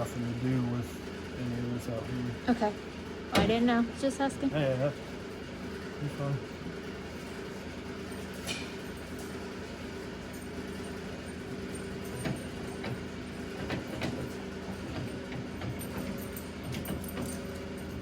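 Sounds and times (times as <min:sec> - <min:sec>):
machine humming: 0:00.0 - 0:08.1.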